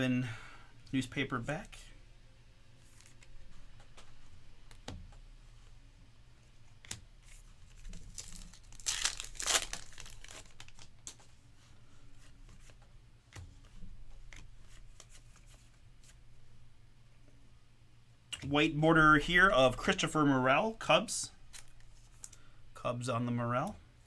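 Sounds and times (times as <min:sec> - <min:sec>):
cards clicking and rustling: 0:06.8 - 0:11.3, 0:12.5 - 0:16.2, 0:21.5 - 0:22.4
card pack wrapper ripping: 0:07.7 - 0:11.2.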